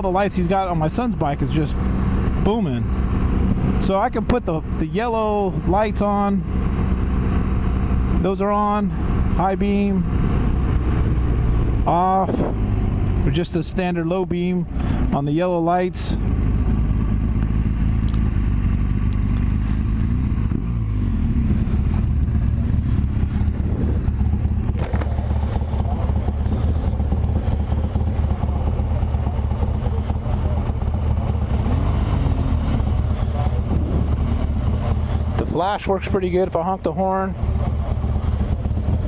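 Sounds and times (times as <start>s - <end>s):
motorcycle engine running: 0.0s - 39.0s
road noise: 0.0s - 39.0s
wind: 0.0s - 39.0s.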